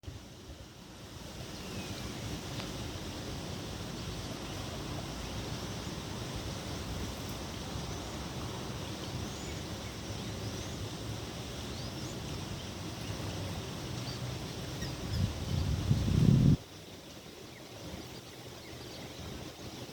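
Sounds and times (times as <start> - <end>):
wind-like hiss: 0.0 - 19.9.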